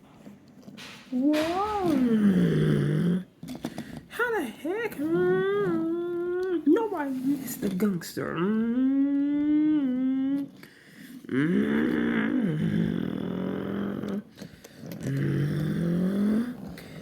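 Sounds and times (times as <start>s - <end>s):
person imitating engine revving: 1.1s - 3.2s, 11.3s - 14.3s.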